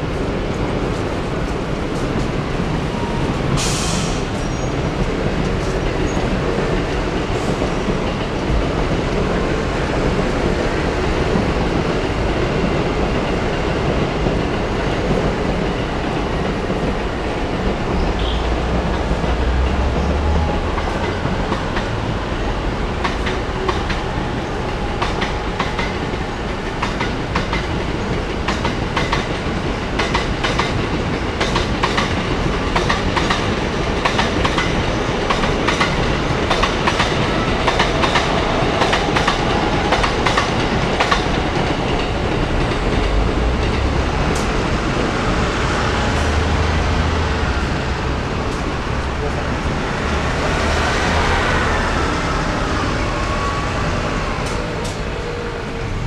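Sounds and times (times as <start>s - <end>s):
train rumbling past: 0.0s - 56.0s
wheels clacking over rail joints: 13.9s - 50.0s.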